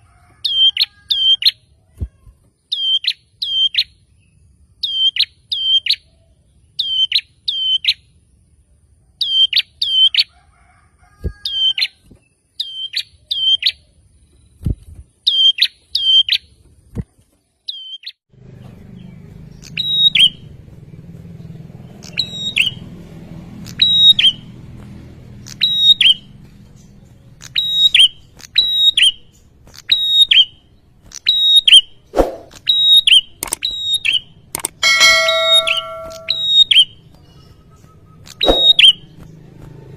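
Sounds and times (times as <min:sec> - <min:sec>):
songbird chirping: 0:02.4 - 0:08.6, 0:17.6 - 0:39.9.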